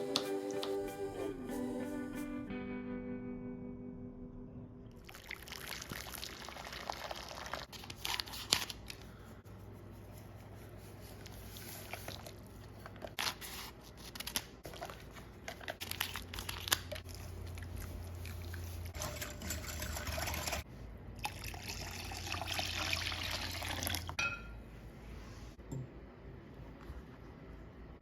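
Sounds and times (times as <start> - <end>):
liquid pouring into container: 5.0 - 7.6, 18.3 - 20.6, 21.2 - 24.1.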